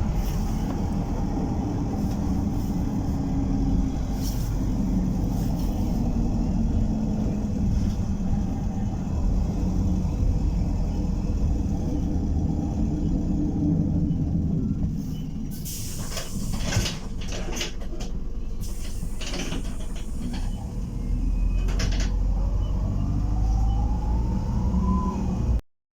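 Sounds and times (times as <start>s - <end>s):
bus engine rumbling: 0.0s - 25.6s
bus rattling and knocking: 0.0s - 25.6s
rising whine: 22.3s - 25.6s.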